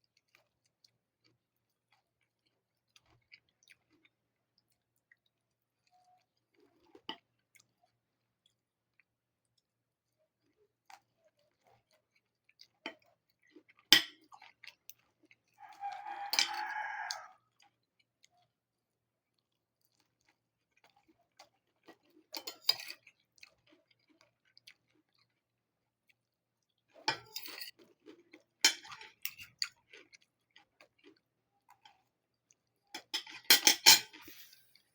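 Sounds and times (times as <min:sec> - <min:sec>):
beak pecking at food: 0:15.6 - 0:17.3.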